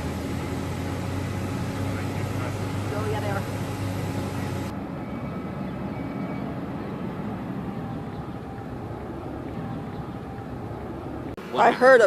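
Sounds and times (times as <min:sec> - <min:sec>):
high hiss: 0:00.0 - 0:04.7
vehicle engines idling rumble: 0:00.0 - 0:12.0.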